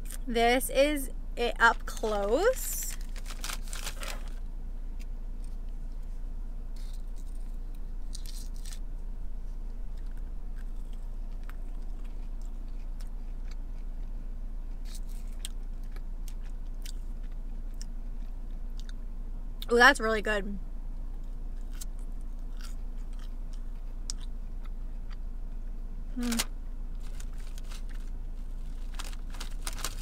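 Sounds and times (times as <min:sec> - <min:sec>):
low car cabin hum: 0:00.0 - 0:30.0
chewing crunchy chicken nugget: 0:06.8 - 0:08.8, 0:09.9 - 0:19.0, 0:21.2 - 0:30.0.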